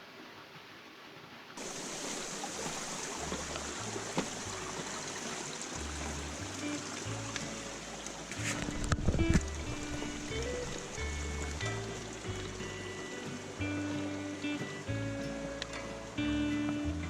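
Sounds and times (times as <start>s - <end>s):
stream water rushing: 0.0s - 17.0s
deep bass background music: 3.2s - 17.0s.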